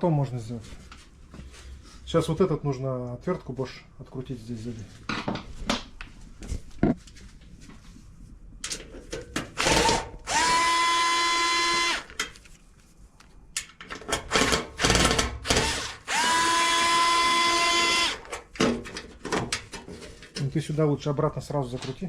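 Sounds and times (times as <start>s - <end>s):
cordless screwdriver motor: 9.6s - 12.1s, 14.8s - 18.2s.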